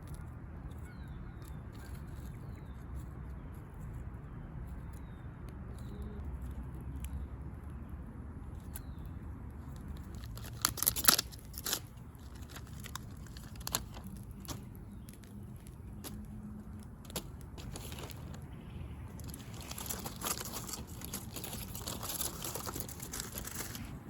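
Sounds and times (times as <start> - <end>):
distant road traffic rumble: 0.0 - 24.0.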